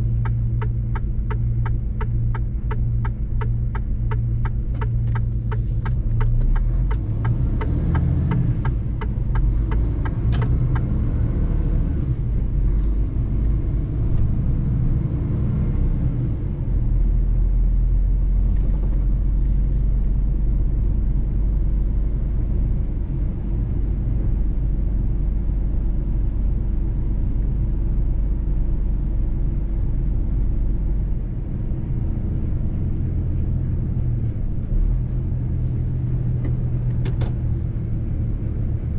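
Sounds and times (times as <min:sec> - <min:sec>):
diesel truck engine rumbling: 0:00.0 - 0:38.9
regular ticks: 0:00.2 - 0:10.9.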